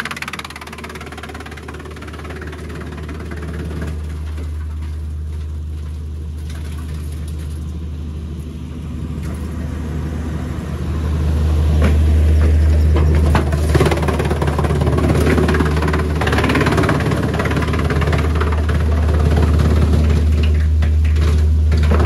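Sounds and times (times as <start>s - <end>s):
sharp clicks and rattles: 0.0s - 4.9s, 12.9s - 22.0s
wood chipper humming: 0.0s - 22.0s.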